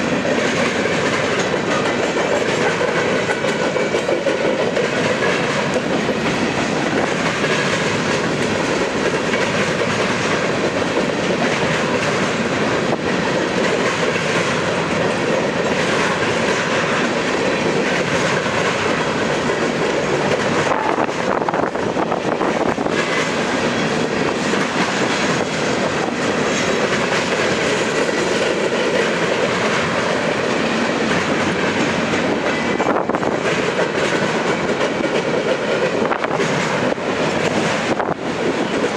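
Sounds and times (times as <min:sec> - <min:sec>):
wheels clicking at rail joints: 0:00.0 - 0:38.9.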